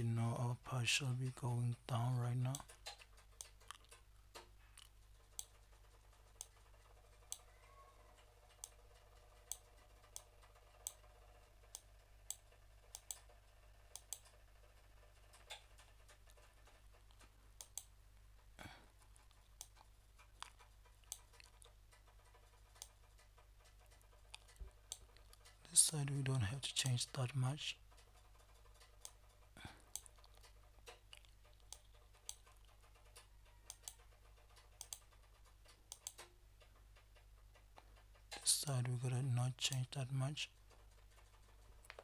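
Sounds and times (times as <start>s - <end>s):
low electrical hum: 0.0s - 42.0s
computer mouse clicks: 2.5s - 5.6s, 6.3s - 6.6s, 11.7s - 13.3s, 13.9s - 14.4s, 17.1s - 17.9s, 19.5s - 25.6s, 29.9s - 38.4s.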